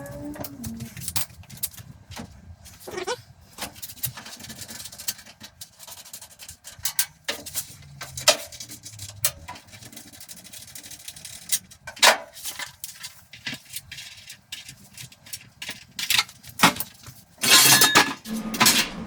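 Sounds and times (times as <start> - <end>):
short low hum: 18.3 - 19.0.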